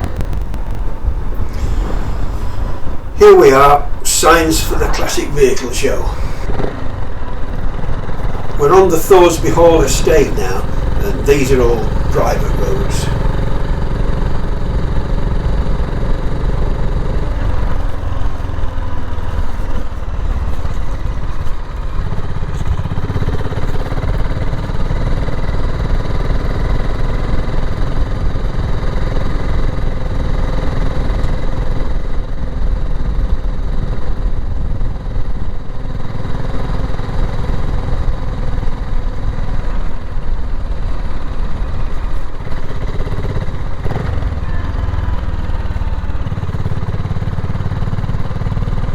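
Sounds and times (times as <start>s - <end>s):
motorcycle engine running: 13.1s - 48.9s.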